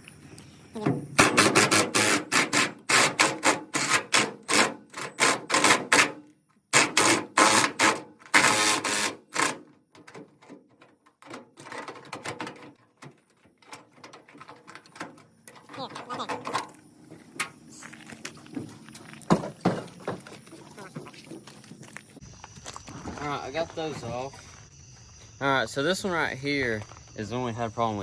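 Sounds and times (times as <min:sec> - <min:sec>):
tool rattling bursts: 0:01.1 - 0:09.7.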